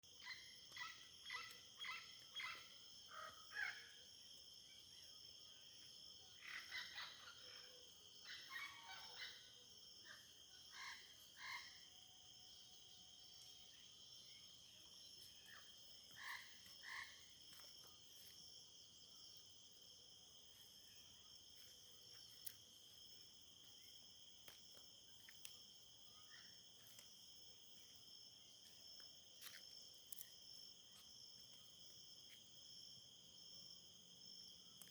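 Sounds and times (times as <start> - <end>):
faint frog calls: 0.1 - 4.1, 6.3 - 28.0
high-pitched insect chorus: 0.1 - 34.9.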